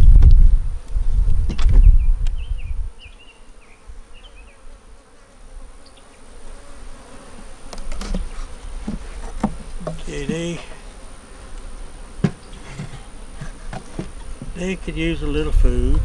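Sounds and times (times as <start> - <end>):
bees buzzing: 0.0 - 16.0
sharp knocks: 7.8 - 10.1, 12.2 - 14.6.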